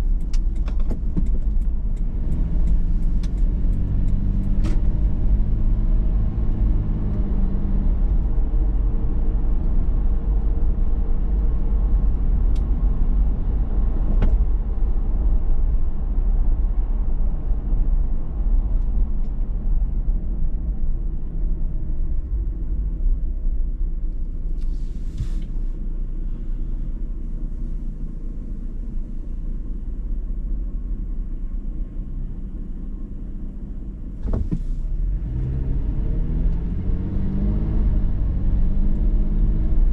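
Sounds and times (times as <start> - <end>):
car road noise rumble: 0.0 - 39.9
engine hum: 0.0 - 39.9
short hiss: 24.6 - 25.7.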